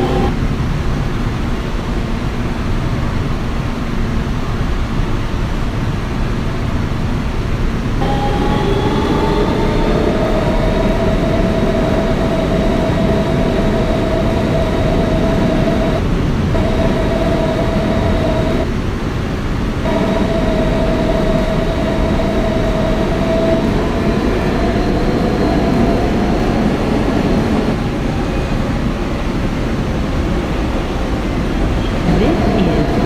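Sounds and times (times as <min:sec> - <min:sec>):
traction motor whine: 0:00.0 - 0:00.4, 0:07.9 - 0:18.8, 0:19.5 - 0:28.9, 0:31.3 - 0:33.0.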